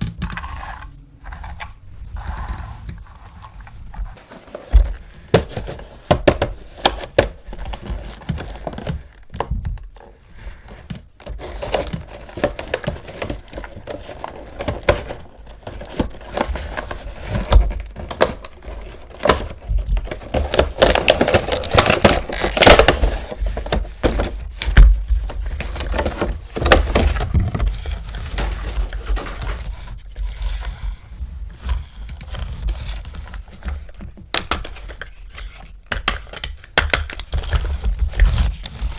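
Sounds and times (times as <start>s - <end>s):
packaging crinkling: 11.3s - 30.5s.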